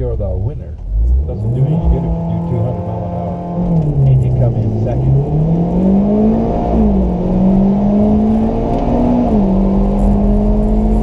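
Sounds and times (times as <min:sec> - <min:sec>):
drag racing cars accelerating: 0:01.1 - 0:11.0.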